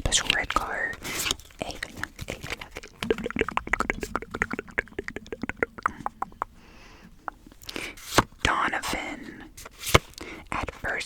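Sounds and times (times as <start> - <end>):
rapid sharp clicks and taps: 2.9 - 6.6.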